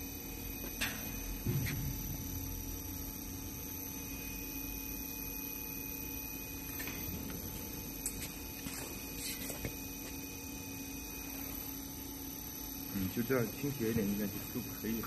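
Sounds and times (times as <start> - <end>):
electrical machinery hum: 0.0 - 15.0.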